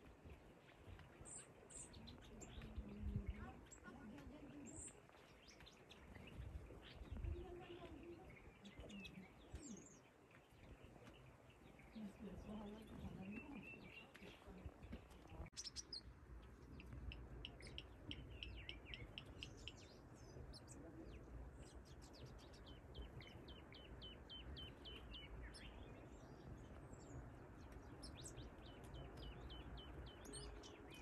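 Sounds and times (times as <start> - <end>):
faint low rumble: 0.0 - 31.0
birds chirping: 0.2 - 31.0.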